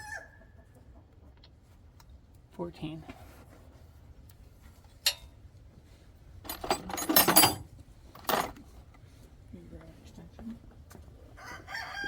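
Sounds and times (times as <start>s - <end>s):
metal hand tools clinking: 5.1s - 5.3s, 6.5s - 8.6s.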